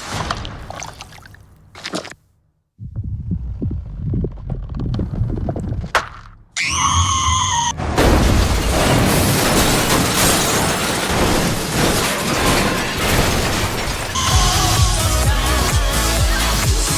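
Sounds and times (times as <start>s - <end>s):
tyre screech: 6.6s - 7.8s
loud car crash: 6.8s - 15.2s.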